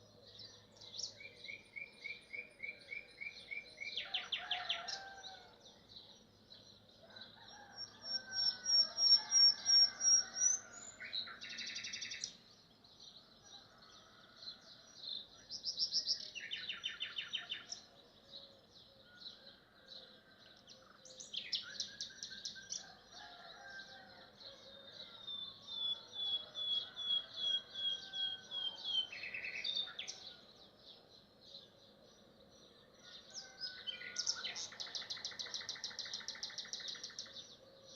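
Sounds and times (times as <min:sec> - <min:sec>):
nightingale singing: 0:00.0 - 0:06.2, 0:07.8 - 0:12.6, 0:15.1 - 0:19.2, 0:20.8 - 0:22.9, 0:24.5 - 0:37.9.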